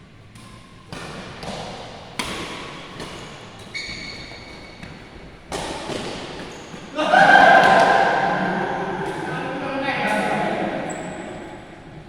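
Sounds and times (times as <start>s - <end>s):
rackets hitting shuttlecock: 0.3s - 9.4s.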